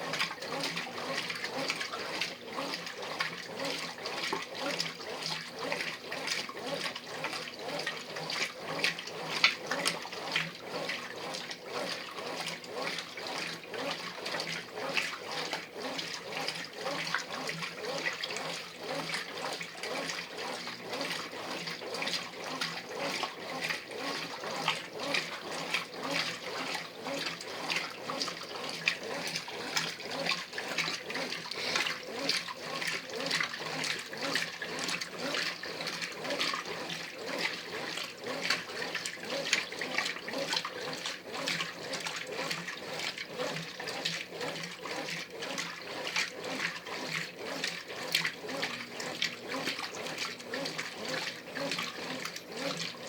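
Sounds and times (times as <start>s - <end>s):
washing machine water sloshing: 0.0s - 53.0s.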